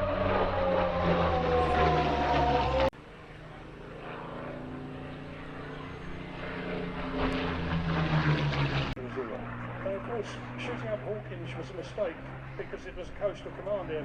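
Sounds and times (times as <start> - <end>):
loud falling tones: 0.0 - 2.9
propeller aircraft drone: 0.0 - 14.0.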